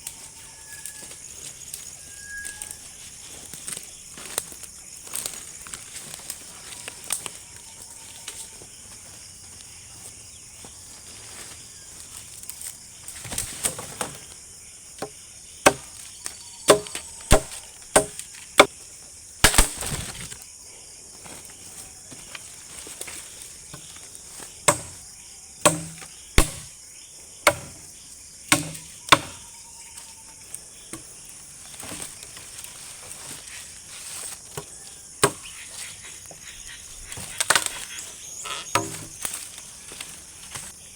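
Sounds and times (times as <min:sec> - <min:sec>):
insect chorus: 0:00.0 - 0:40.9
wood chopping strikes: 0:15.0 - 0:16.1, 0:16.7 - 0:18.7, 0:19.4 - 0:20.3, 0:24.6 - 0:25.0, 0:25.6 - 0:26.8, 0:27.4 - 0:27.8, 0:28.5 - 0:29.4, 0:34.5 - 0:35.5, 0:38.7 - 0:39.4.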